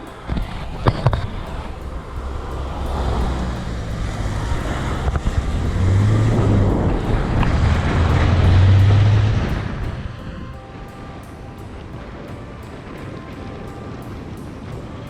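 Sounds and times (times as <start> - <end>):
road and tyre noise: 0.0 - 10.6
car engine drone: 0.0 - 15.0.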